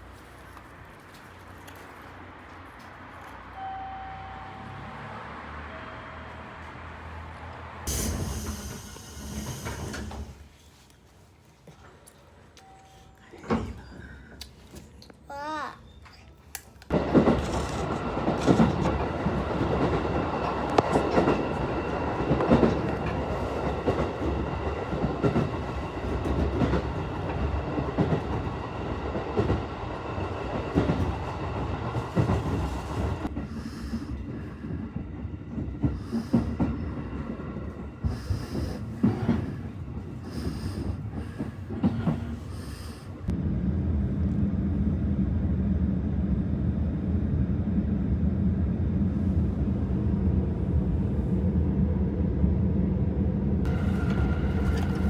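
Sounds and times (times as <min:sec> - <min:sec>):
train running rumble: 0:04.7 - 0:10.8, 0:16.9 - 0:55.0
rail clatter: 0:16.9 - 0:43.3, 0:53.7 - 0:55.0.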